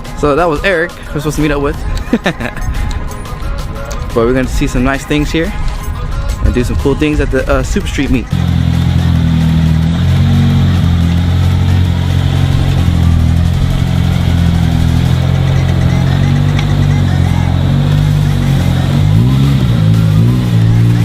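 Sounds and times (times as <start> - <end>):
car engine revving: 8.3 - 21.0.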